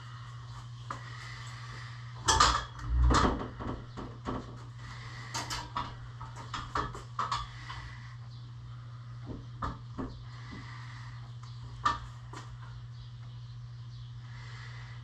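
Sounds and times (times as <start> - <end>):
steady low hum: 0.0 - 15.0
knocks and clanks: 2.2 - 4.7.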